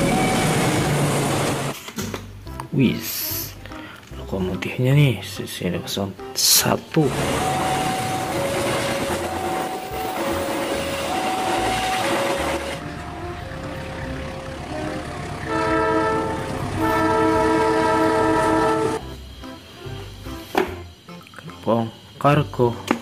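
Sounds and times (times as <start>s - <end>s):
diesel locomotive horn: 0.0s - 1.7s, 7.1s - 19.2s
passenger train rushing past: 0.0s - 1.8s, 6.4s - 19.4s
slow two-note alternating tone: 7.1s - 20.4s.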